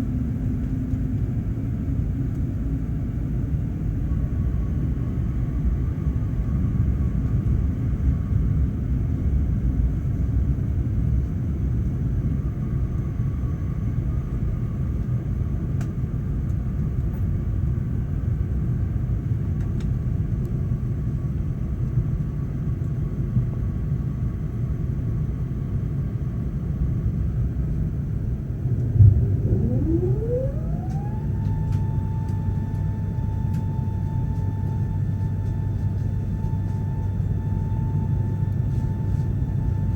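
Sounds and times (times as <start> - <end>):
low cabin rumble: 26.5 - 39.9
jet engine whine spooling up: 27.0 - 39.9.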